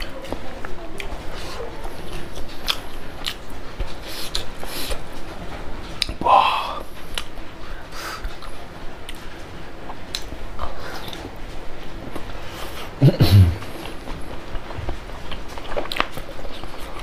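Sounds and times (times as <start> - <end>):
chewing and wet mouth smacks: 0.0 - 5.0, 7.1 - 7.3, 9.9 - 11.3, 15.3 - 17.0.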